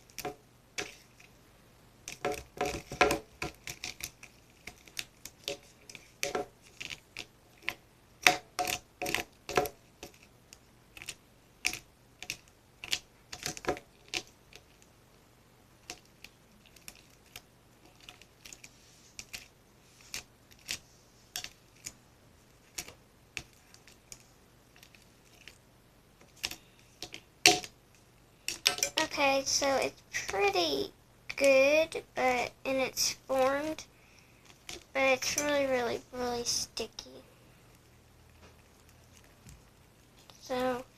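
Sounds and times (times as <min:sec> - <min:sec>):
slime being stirred clicking: 0:02.0 - 0:14.9, 0:15.8 - 0:25.6, 0:26.2 - 0:27.8, 0:34.4 - 0:36.8.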